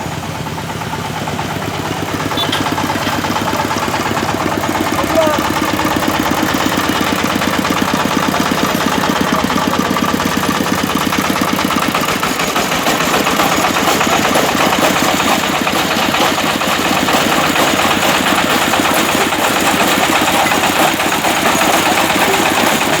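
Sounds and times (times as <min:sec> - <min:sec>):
brick breaking machine running: 0:01.5 - 0:23.0.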